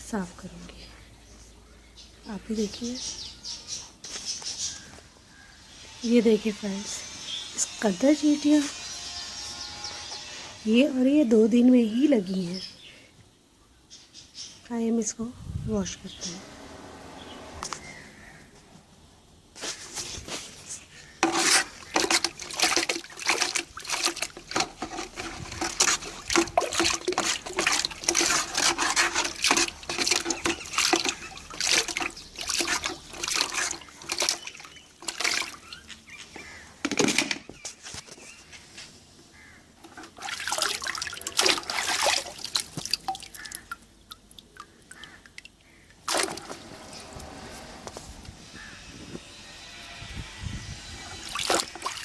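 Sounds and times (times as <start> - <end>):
water splashing and pouring: 21.2 - 36.1, 40.0 - 47.5, 51.1 - 52.0.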